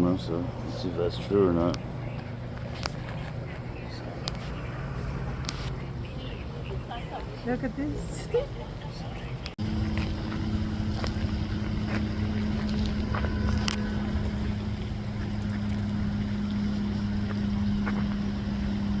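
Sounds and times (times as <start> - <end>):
motor hum: 8.6 - 19.0.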